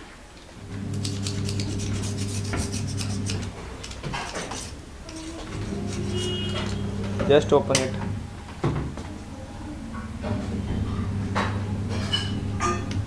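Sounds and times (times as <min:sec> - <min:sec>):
metal clicks and scraping: 0:02.7 - 0:06.8.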